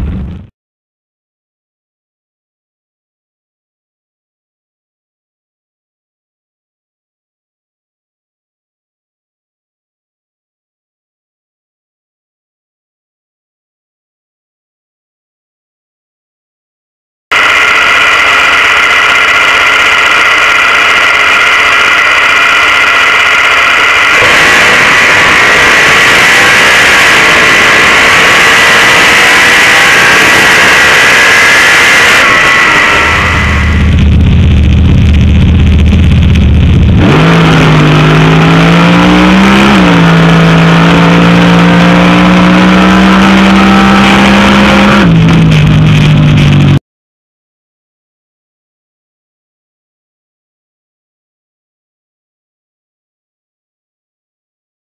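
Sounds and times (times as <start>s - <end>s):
car engine running steadily: 0.0s - 0.5s, 17.3s - 46.8s.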